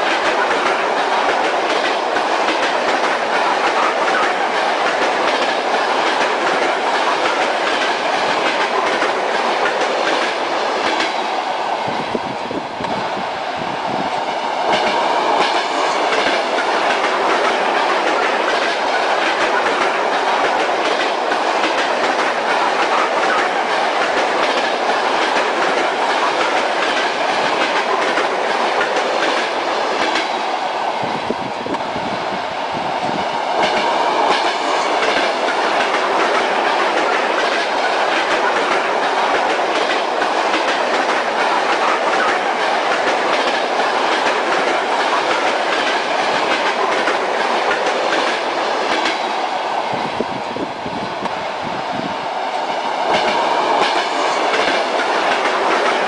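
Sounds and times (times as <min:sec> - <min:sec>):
train carriage rumble: 0:00.0 - 0:56.0
train wheels clacking on rails: 0:00.0 - 0:56.0.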